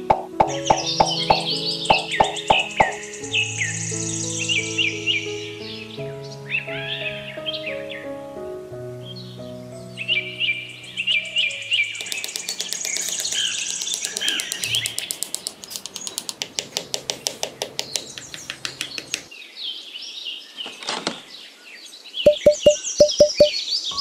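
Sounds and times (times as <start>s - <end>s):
birds chirping and tweeting: 0.0s - 8.2s, 9.0s - 24.0s
fast rattle of clicks: 12.0s - 19.3s
sharp loud ringing clicks: 22.3s - 23.5s.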